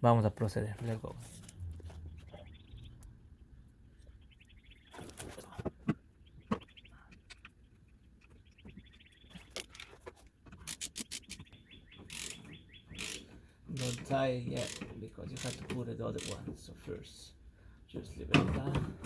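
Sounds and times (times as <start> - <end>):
metal bolts and tools clicking: 9.5 - 16.6.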